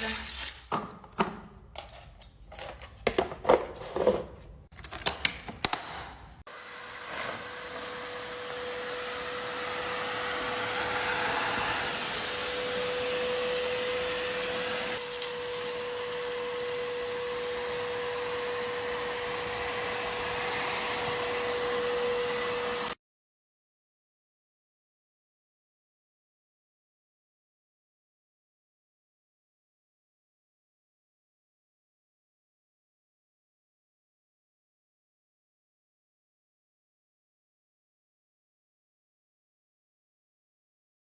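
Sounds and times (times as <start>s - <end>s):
vacuum cleaner motor whining: 6.5s - 23.0s.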